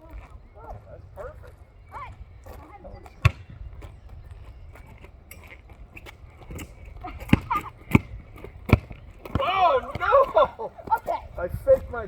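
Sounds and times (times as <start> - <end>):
basketball bouncing on pavement: 3.0 - 5.1, 5.8 - 12.0.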